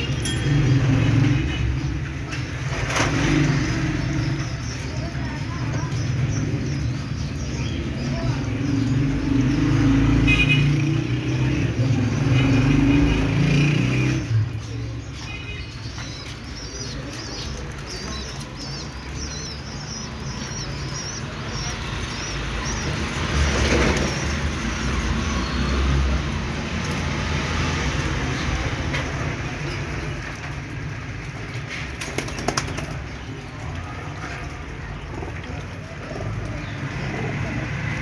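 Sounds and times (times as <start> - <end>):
birds flapping wings: 31.6 - 33.3.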